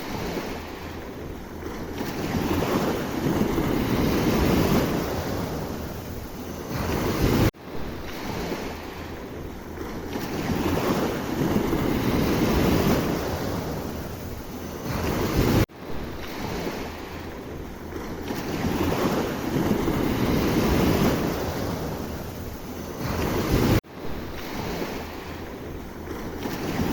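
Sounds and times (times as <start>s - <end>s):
waves breaking: 0.0s - 26.9s.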